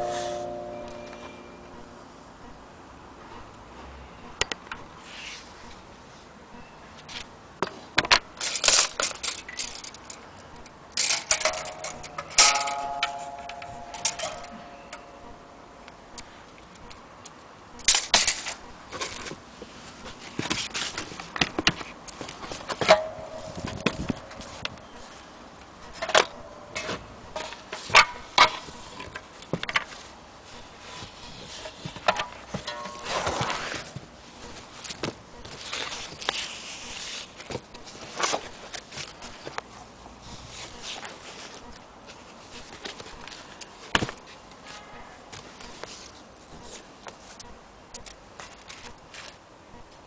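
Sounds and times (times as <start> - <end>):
faint brief ringing tones: 0.0 - 1.8
mandolin strings ringing: 0.0 - 2.2, 11.2 - 15.9, 22.9 - 24.4, 32.6 - 33.6
mandolin handling clicks and rubbing: 11.0 - 15.0, 31.6 - 33.7.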